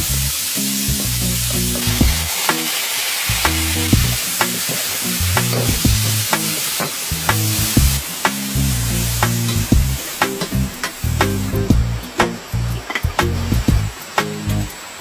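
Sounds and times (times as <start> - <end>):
giblets sizzling in hot oil: 0.0 - 15.0.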